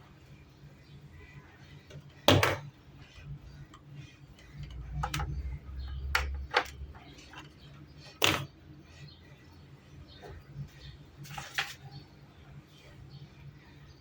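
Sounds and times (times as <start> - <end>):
sharp clicks and knocks: 4.4 - 5.4.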